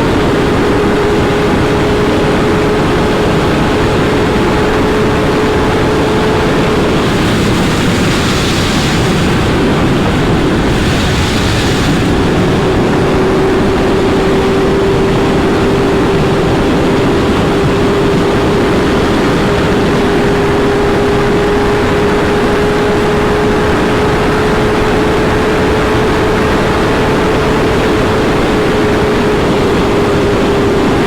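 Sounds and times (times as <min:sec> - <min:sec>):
wind rush: 0:00.0 - 0:20.6.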